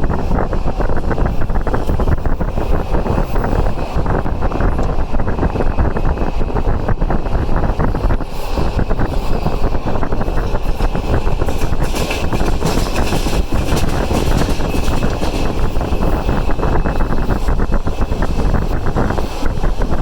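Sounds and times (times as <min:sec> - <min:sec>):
rushing wind: 0:00.0 - 0:20.0
train wheels rumbling on rails: 0:00.0 - 0:20.0.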